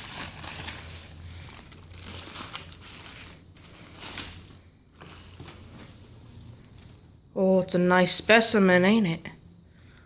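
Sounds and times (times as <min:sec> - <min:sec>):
food wrapper crinkling: 0:00.0 - 0:07.2.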